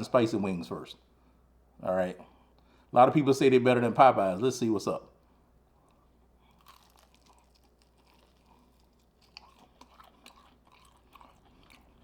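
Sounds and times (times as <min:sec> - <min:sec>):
crackle: 0:05.8 - 0:12.0
crunching and chewing: 0:05.8 - 0:12.0.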